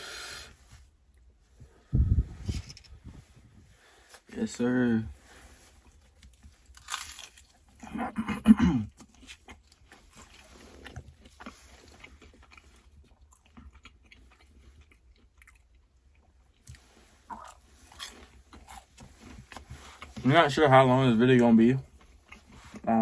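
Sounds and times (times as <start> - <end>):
person chewing food: 5.4 - 20.3, 21.8 - 22.9
throaty vocal sound: 22.8 - 23.0.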